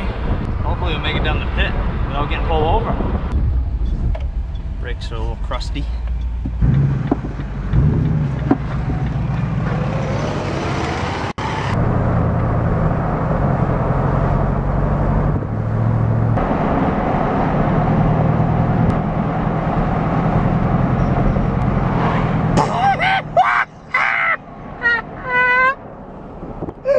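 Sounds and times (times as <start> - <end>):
road noise: 0.0 - 26.9
pickup truck engine running: 5.4 - 9.8.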